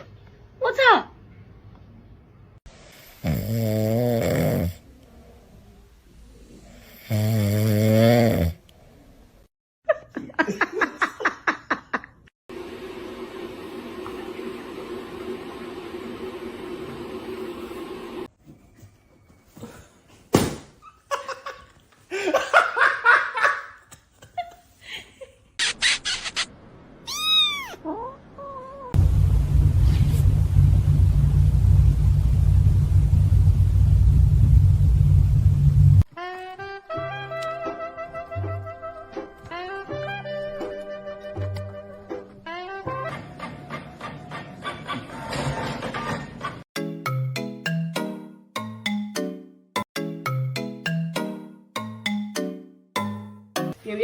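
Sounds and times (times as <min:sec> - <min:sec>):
pet snoring: 0:03.2 - 0:04.8, 0:06.7 - 0:08.6
person laughing: 0:09.9 - 0:12.2.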